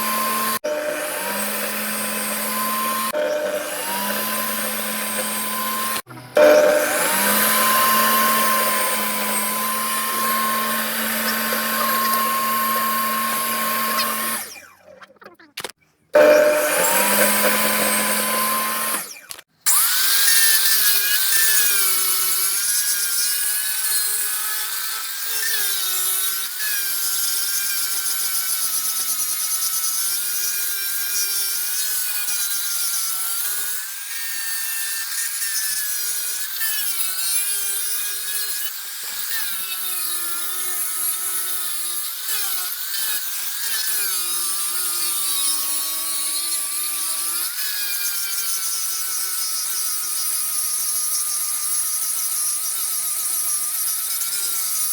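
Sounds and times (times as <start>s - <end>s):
steady machine sound: 0.0s - 14.4s, 16.2s - 19.0s
power tool working wood: 0.0s - 15.0s, 15.6s - 54.9s.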